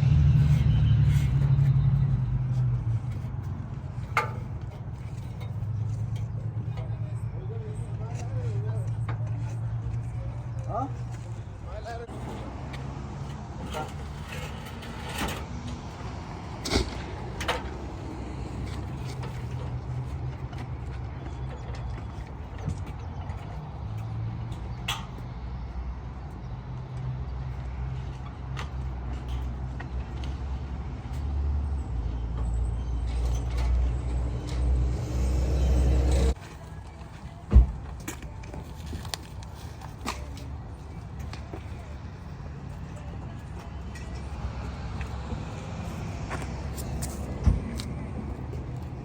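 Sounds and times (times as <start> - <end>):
engine running with low hum: 27.6 - 37.4.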